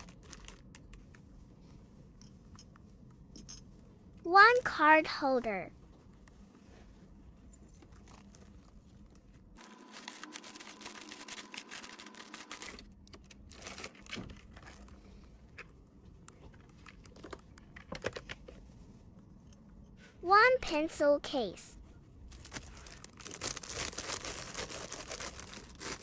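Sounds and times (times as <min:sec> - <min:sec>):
plastic packaging crinkling: 0:00.0 - 0:01.0, 0:09.6 - 0:14.9, 0:22.3 - 0:26.0.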